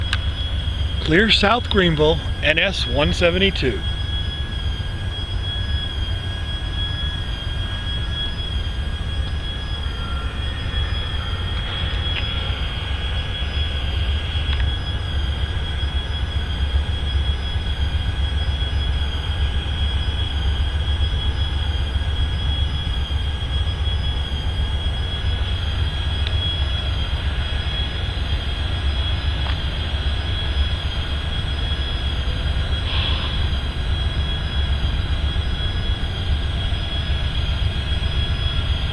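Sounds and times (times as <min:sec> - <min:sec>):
rail equipment rumble: 0:03.6 - 0:38.9
high-pitched squeal: 0:09.2 - 0:15.2.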